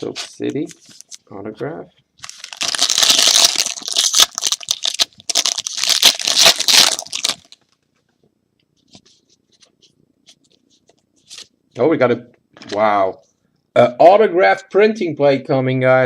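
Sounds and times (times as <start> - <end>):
foil wrapper crinkling and tearing: 2.2 - 7.6.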